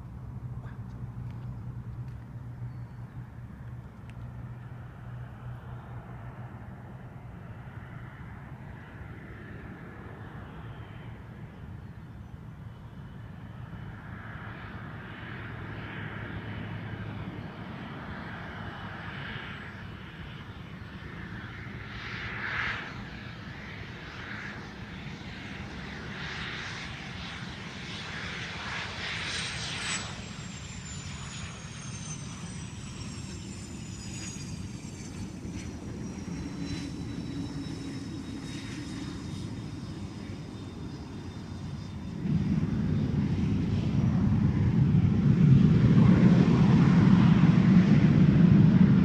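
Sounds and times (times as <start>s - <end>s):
jet engines rushing: 0.0s - 49.0s
high whine gliding down: 28.3s - 49.0s.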